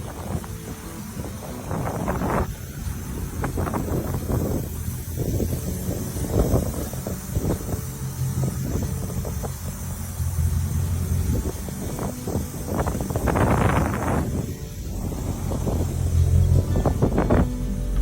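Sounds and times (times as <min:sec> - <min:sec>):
car engine running: 0:13.3 - 0:18.0.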